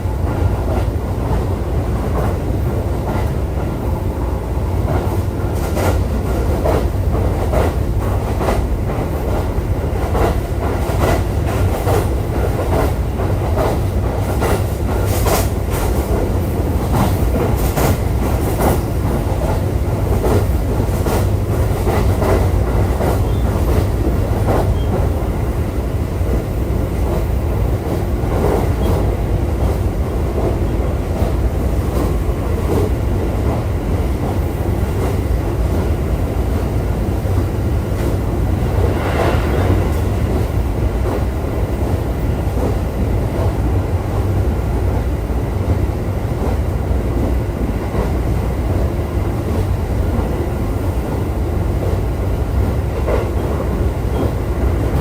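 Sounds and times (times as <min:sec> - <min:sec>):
wheels rumbling on rail: 0:00.0 - 0:55.0
rail-joint clicks: 0:04.8 - 0:25.2, 0:27.0 - 0:33.6.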